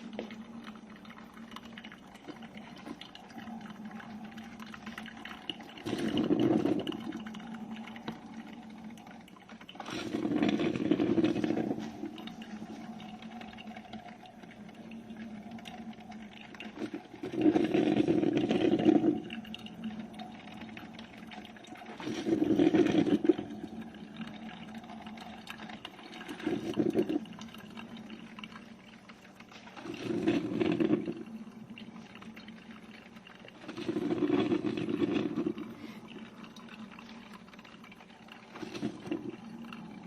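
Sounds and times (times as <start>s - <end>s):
water surging through coffee maker: 0.0s - 40.0s.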